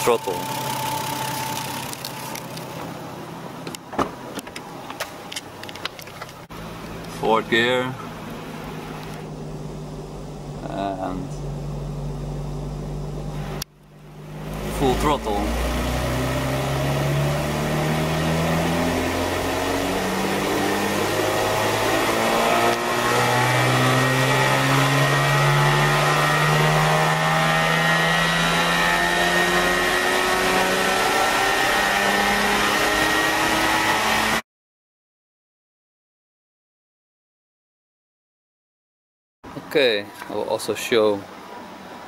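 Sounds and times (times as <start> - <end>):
car engine at full throttle: 0.0 - 4.4, 5.7 - 34.4.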